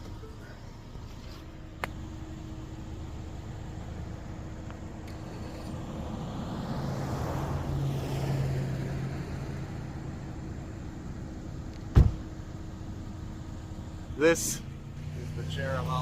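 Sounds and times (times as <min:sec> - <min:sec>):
car road noise rumble: 0:00.0 - 0:16.0
vehicle passing: 0:02.0 - 0:10.7, 0:14.2 - 0:16.0
sharp thump: 0:11.9 - 0:12.3.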